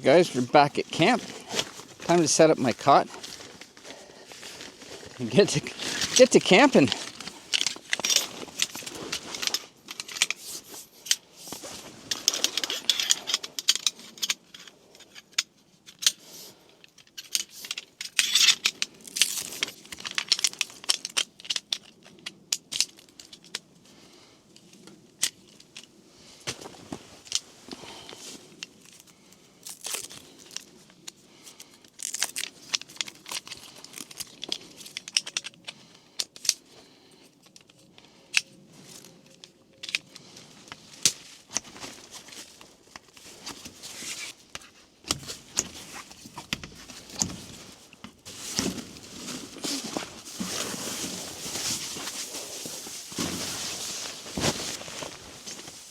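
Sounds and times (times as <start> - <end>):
fabric and packaging rustling: 0.1 - 13.2, 40.0 - 55.9.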